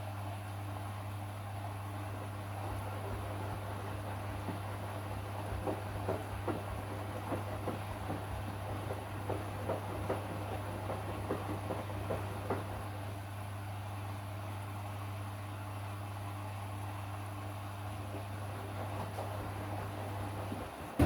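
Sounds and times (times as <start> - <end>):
washing machine humming: 0.0 - 21.0
soft knocks: 2.6 - 13.0, 18.2 - 21.0.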